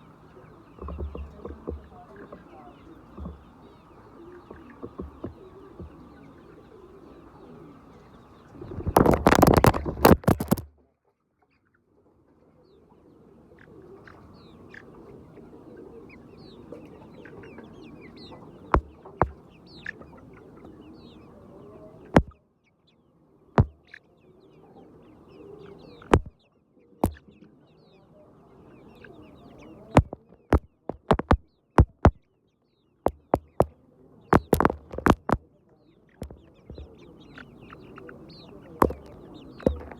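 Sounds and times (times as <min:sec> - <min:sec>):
chickens clucking: 0:00.0 - 0:10.6, 0:11.8 - 0:22.4, 0:27.0 - 0:27.6, 0:28.7 - 0:32.1, 0:33.1 - 0:35.4, 0:36.0 - 0:39.9
sharp clicks: 0:08.9 - 0:10.7, 0:26.1 - 0:26.3, 0:30.0 - 0:32.2, 0:33.1 - 0:33.7, 0:34.4 - 0:35.4, 0:36.2 - 0:36.9.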